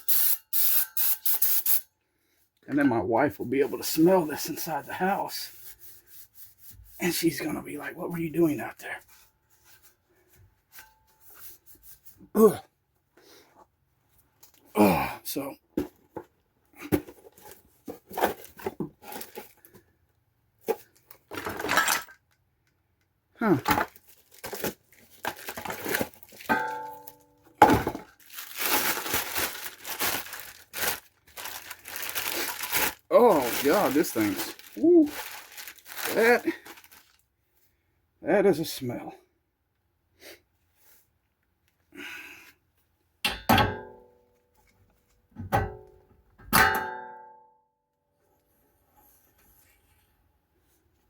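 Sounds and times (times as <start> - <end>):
rustling and scrubbing handling noise: 3.4 - 12.3, 27.8 - 37.2
metal-on-metal strikes ringing: 43.3 - 44.1, 46.6 - 47.4.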